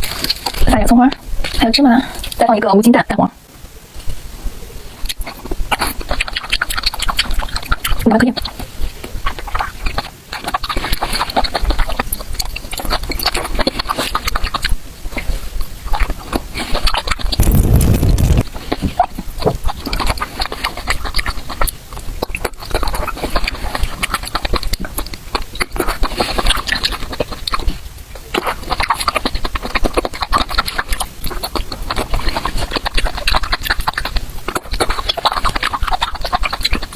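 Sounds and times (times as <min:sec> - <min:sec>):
close chewing and slurping: 0:00.0 - 0:02.7, 0:03.8 - 0:36.9
loud low muffled thump: 0:17.4 - 0:18.4.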